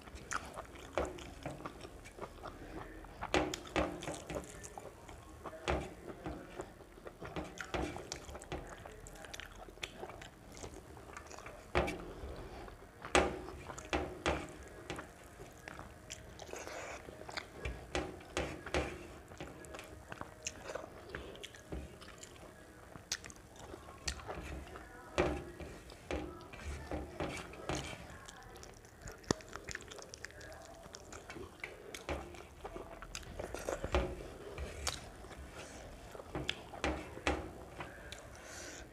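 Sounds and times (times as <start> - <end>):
person chewing: 0.0 - 5.3, 14.6 - 18.4, 19.3 - 24.3, 27.5 - 36.8.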